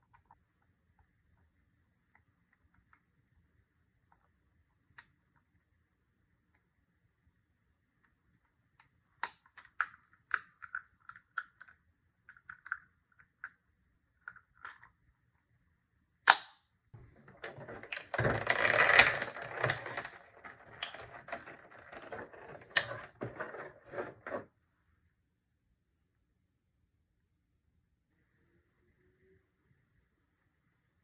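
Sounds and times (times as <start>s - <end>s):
sharp snap: 16.3s - 16.6s
packaging rustling: 17.2s - 24.4s.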